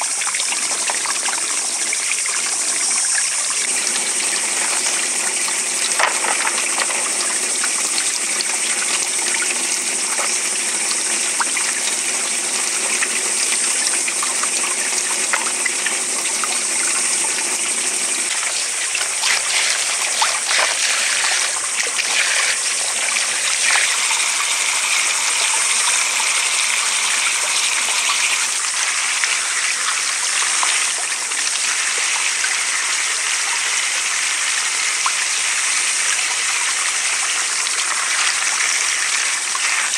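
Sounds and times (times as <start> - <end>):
water running: 0.0 - 39.9.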